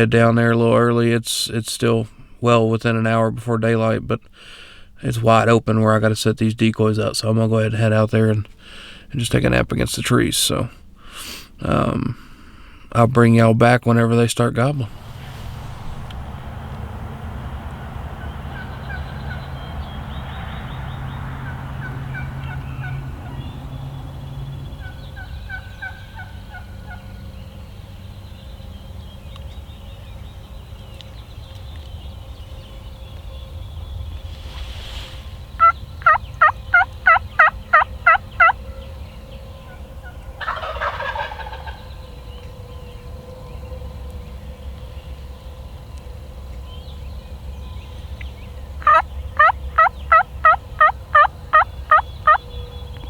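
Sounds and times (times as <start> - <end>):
wild turkeys calling: 16.0 - 27.8, 35.6 - 43.0, 48.0 - 53.0.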